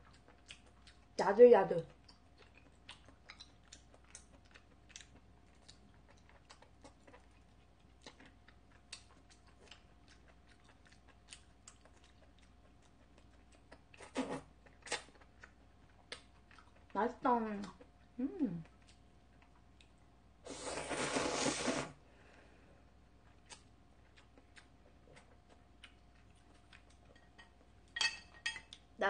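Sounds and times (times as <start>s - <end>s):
faint chewing: 0.0s - 21.7s, 23.2s - 27.9s
person humming: 18.2s - 18.6s.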